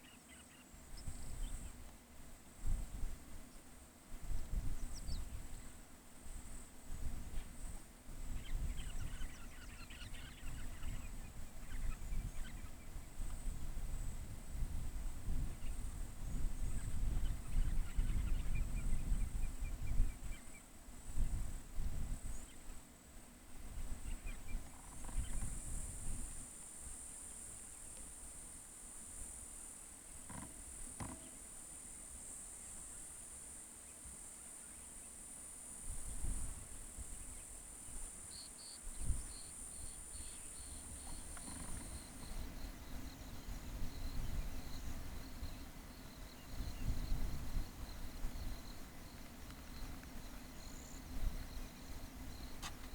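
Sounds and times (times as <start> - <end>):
insects droning: 0.0 - 52.9
wind rumbling on microphone: 0.9 - 1.9, 2.6 - 3.4, 4.1 - 22.6, 23.6 - 26.5, 35.8 - 38.1, 38.9 - 52.9.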